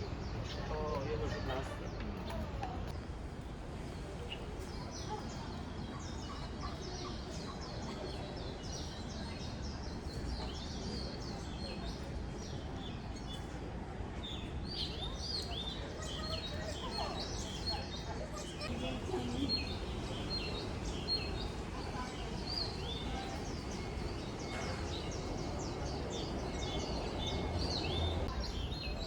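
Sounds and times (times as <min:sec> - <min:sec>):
small birds chirping: 0:14.2 - 0:29.0.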